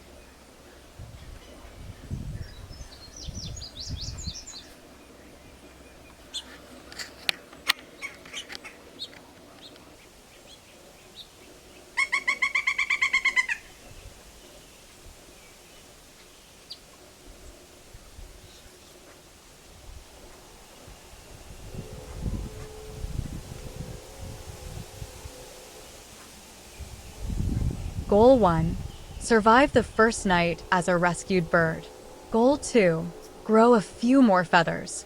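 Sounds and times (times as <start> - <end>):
birds chirping: 0.1 - 6.5.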